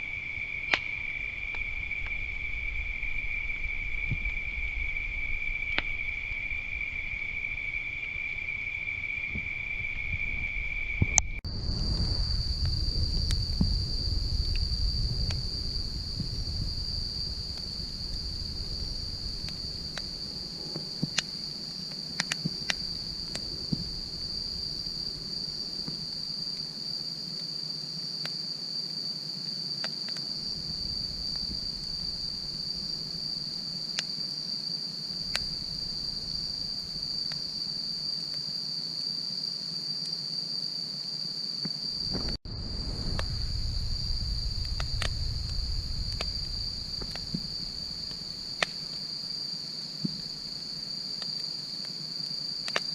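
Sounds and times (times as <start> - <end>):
crickets chirping: 0.0 - 52.9
low rumble: 11.0 - 20.6, 42.1 - 48.5
wood fire crackling and popping: 11.0 - 26.6, 29.8 - 34.4, 35.1 - 38.5, 42.0 - 49.3, 52.6 - 52.9.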